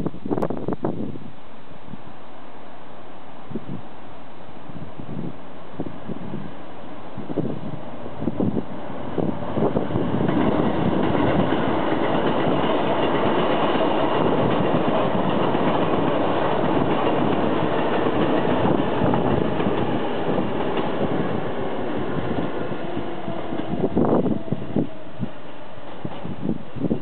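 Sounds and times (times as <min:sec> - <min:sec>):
train wheels rumbling on rail: 0:05.0 - 0:27.0
wheels clacking over rail joints: 0:07.9 - 0:24.3.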